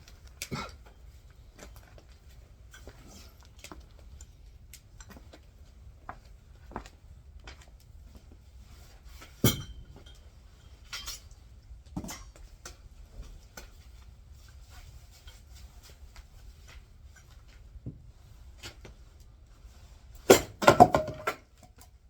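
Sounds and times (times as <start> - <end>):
axe splitting firewood: 20.3 - 21.4
wood knocks and clinks: 20.3 - 21.7.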